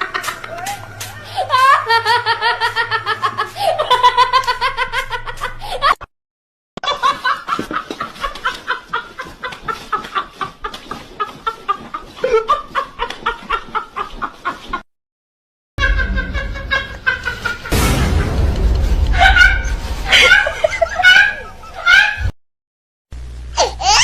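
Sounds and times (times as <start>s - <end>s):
high pitched laugh: 0.0s - 6.1s, 15.8s - 18.5s, 19.1s - 22.3s
rapid choppy cackling: 6.8s - 14.8s.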